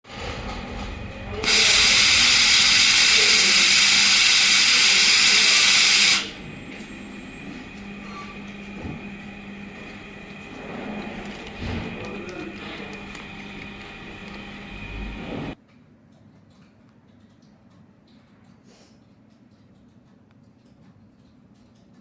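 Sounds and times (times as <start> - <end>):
low machine hum: 0.1 - 15.6
welding hiss: 1.4 - 6.4.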